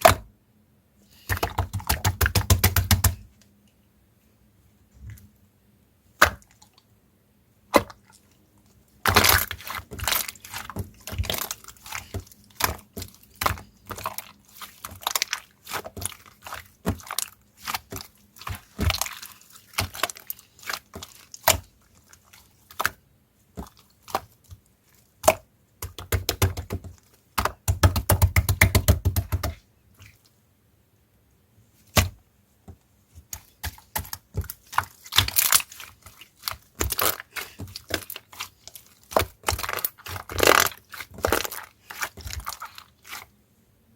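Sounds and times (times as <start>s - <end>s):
slime squished by hand: 9.0s - 23.0s, 33.2s - 43.3s.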